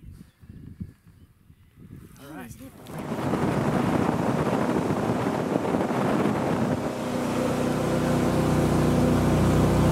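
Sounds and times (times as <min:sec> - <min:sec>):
wind and water rushing: 0:02.7 - 0:09.9
motorboat engine humming: 0:02.8 - 0:09.9.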